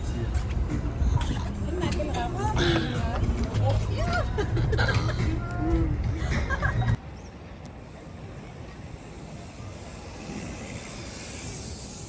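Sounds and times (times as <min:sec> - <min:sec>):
boat engine rumble and hiss: 0:07.0 - 0:12.0.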